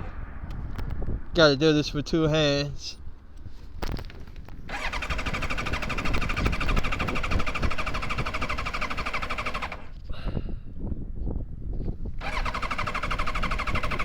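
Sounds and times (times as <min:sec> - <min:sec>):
electric starter cranking engine: 0:04.7 - 0:10.0, 0:12.2 - 0:14.0.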